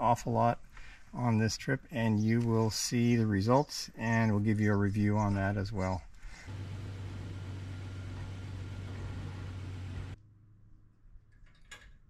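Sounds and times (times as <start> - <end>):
pickup engine idling: 6.5 - 10.2.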